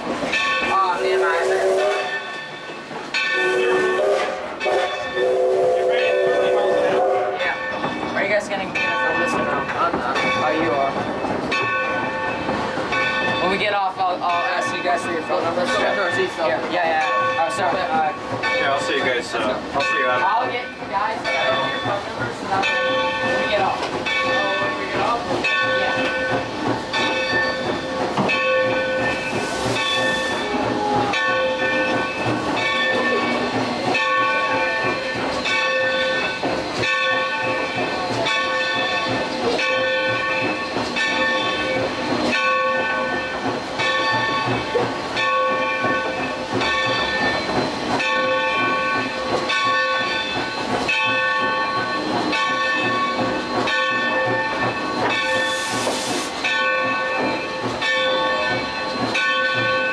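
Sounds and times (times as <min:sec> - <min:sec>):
steam hissing: 0:00.0 - 0:07.5, 0:21.6 - 0:59.9
steam locomotive chugging: 0:00.0 - 0:59.9.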